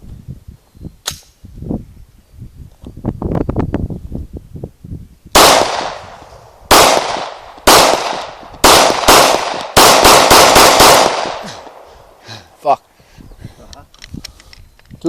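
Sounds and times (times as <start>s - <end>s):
pistol gunshots with echo: 5.4s - 11.9s.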